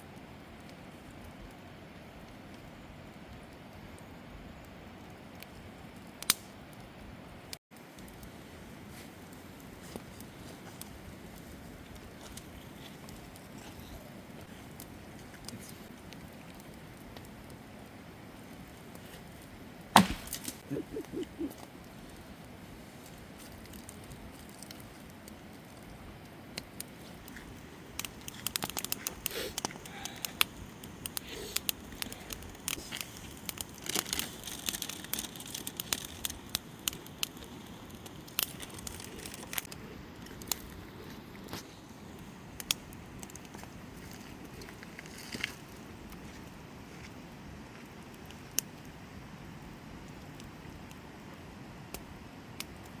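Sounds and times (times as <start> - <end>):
wood cracking and snapping: 20.0 - 20.6.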